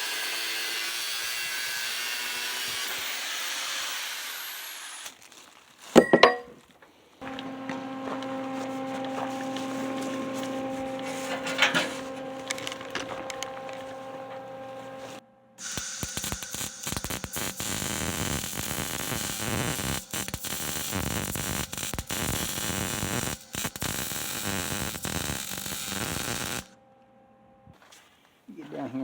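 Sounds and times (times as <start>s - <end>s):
cutting torch hissing: 0.0s - 6.0s, 7.2s - 26.7s
steady hum: 7.2s - 27.8s.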